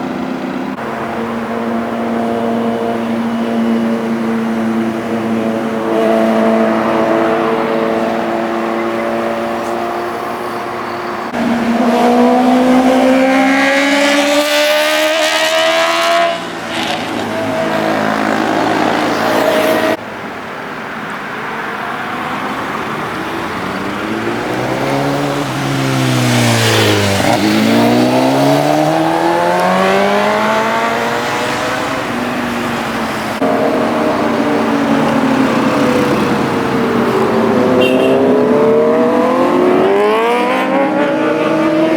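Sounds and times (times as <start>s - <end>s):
motorcycle passing by: 1.1s - 20.0s, 22.9s - 41.9s
motorcycle engine accelerating: 11.3s - 20.0s, 23.6s - 32.5s, 33.4s - 41.9s.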